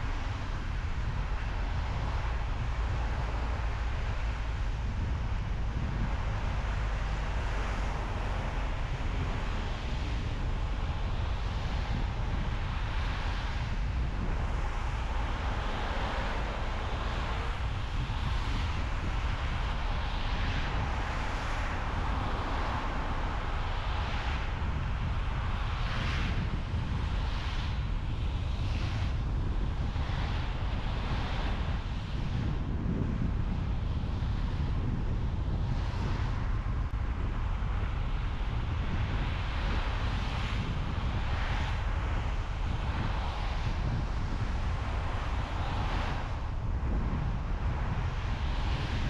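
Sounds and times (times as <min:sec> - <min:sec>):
car tyre road noise: 0:00.0 - 0:49.0.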